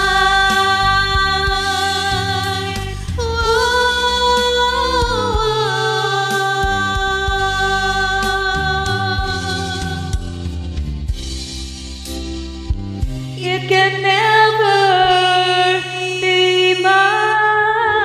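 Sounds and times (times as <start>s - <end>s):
person singing long notes: 0.0s - 10.3s
karaoke backing track: 0.0s - 18.0s.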